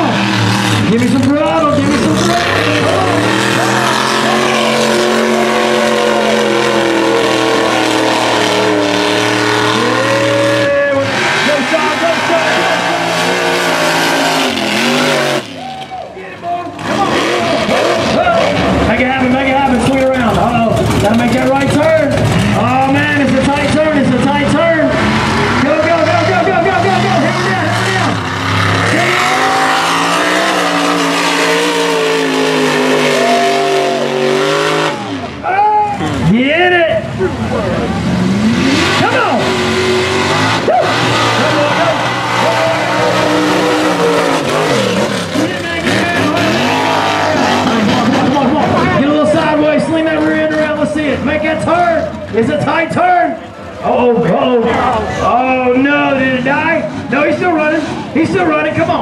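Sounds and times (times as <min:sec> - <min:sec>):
truck engine revving hard: 0:00.0 - 0:15.9, 0:16.5 - 0:59.0.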